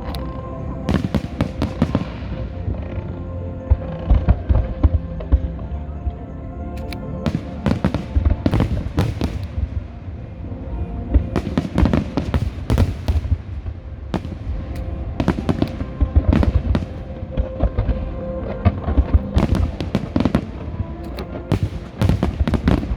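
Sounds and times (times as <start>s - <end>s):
music playing: 0.0s - 22.9s
fireworks bangs and crackles: 0.9s - 2.5s, 7.2s - 9.9s, 11.1s - 22.9s.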